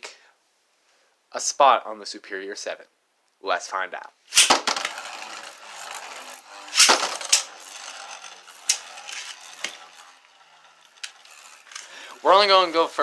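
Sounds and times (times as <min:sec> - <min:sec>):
spinning tops clacking together: 0:04.3 - 0:13.0
spinning tops whirring: 0:04.3 - 0:13.0.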